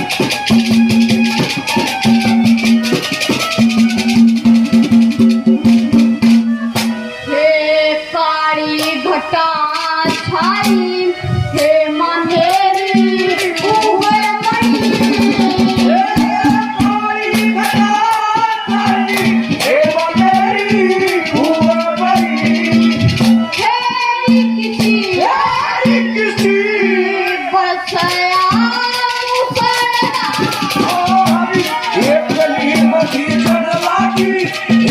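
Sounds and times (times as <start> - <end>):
rhythmic percussion clicks: 0.0 - 7.0, 8.8 - 11.0, 11.6 - 34.9
person singing: 7.2 - 34.9
held drone note: 8.8 - 29.6.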